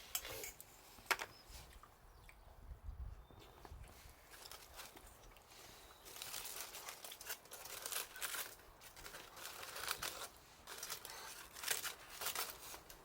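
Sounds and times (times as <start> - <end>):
wrapping material crinkling: 5.9 - 13.0.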